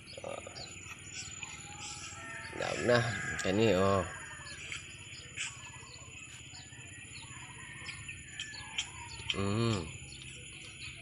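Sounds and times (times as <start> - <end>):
faint birds chirping: 0.0 - 11.0.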